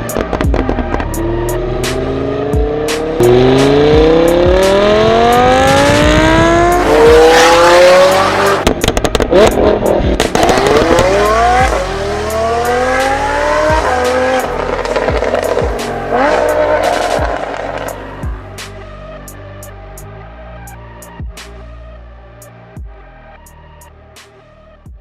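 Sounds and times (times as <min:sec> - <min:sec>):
sports car engine accelerating: 0:00.1 - 0:19.1
exhaust crackles and pops: 0:08.6 - 0:11.8.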